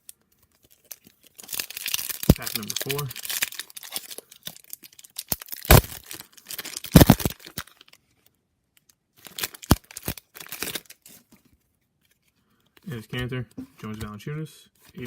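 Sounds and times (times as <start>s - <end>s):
wrapper tearing and crinkling: 0.0s - 8.0s, 8.8s - 11.3s.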